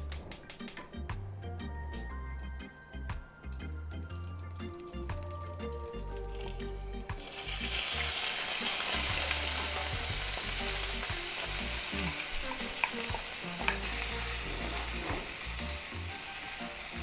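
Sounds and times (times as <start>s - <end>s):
food sizzling in a hot pan: 5.4s - 17.0s
utensil clicking against pan: 12.4s - 14.0s.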